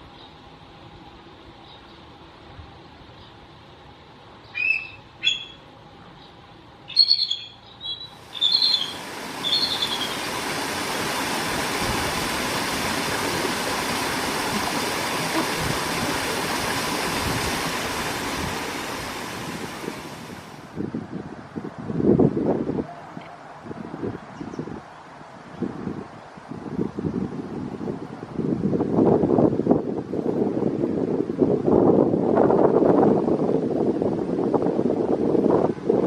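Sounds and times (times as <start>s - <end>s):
short bird calls: 6.9s - 10.3s
steady rushing noise: 8.2s - 21.2s.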